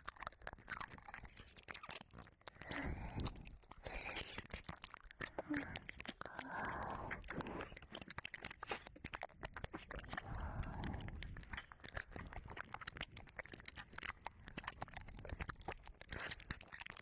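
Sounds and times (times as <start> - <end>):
wet licking and mouth clicks: 0.0 - 17.0
breathing: 2.5 - 4.5, 5.2 - 7.8, 10.2 - 11.5, 16.1 - 16.5.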